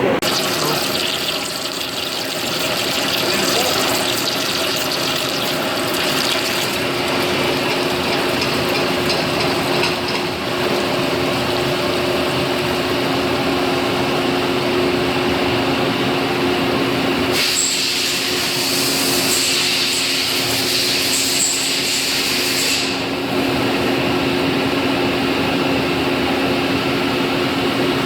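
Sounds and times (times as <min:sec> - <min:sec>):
lathe machine hum: 0:00.0 - 0:17.1
hiss of flowing coolant: 0:00.2 - 0:08.3, 0:17.3 - 0:23.2.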